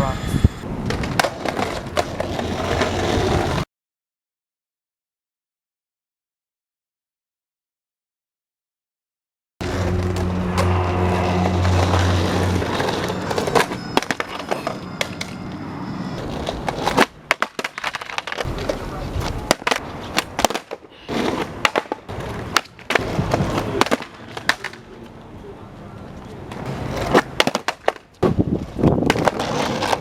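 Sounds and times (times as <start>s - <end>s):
skateboard wheels rolling on pavement: 0.6s - 3.6s, 9.6s - 30.0s
skateboard clacks: 0.8s - 3.6s, 11.7s - 15.4s, 16.2s - 25.2s, 26.4s - 30.0s.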